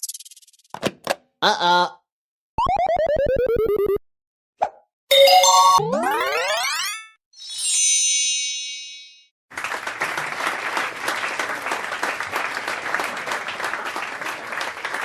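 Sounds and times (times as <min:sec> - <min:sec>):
crowd applauding: 0:09.5 - 0:15.0.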